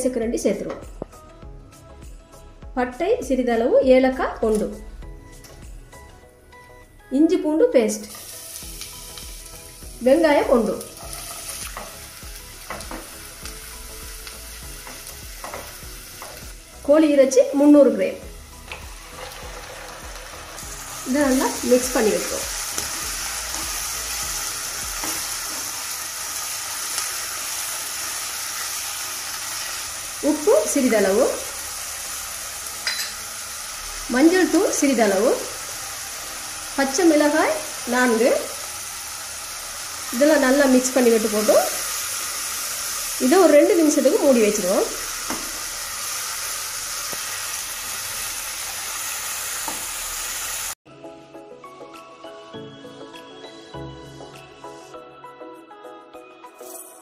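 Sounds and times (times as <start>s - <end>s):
chicken sizzling in hot oil: 8.0s - 16.9s, 18.2s - 50.8s.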